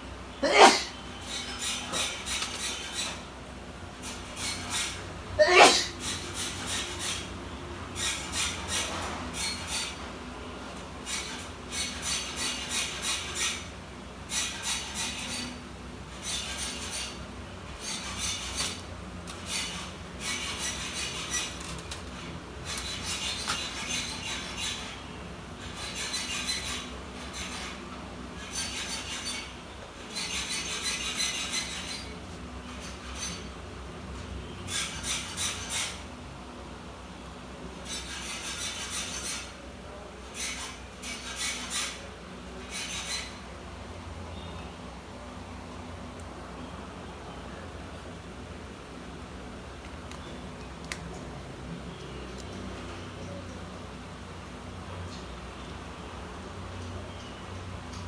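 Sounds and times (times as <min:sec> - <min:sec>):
plastic parts scraping and clicking: 0:17.8 - 0:24.9.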